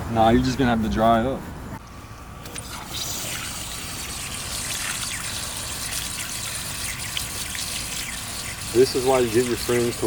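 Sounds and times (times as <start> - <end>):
small drips and splashes: 2.4 - 10.0
water trickling onto ground: 2.5 - 10.0.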